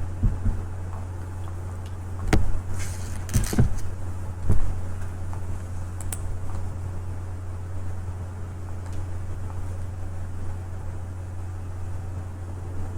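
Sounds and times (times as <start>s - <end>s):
brushing noises: 2.3s - 4.0s.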